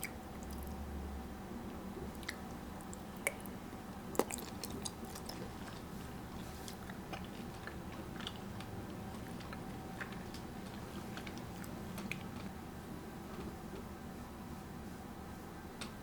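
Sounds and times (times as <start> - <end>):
person chewing food: 0.0 - 0.8, 2.0 - 12.4.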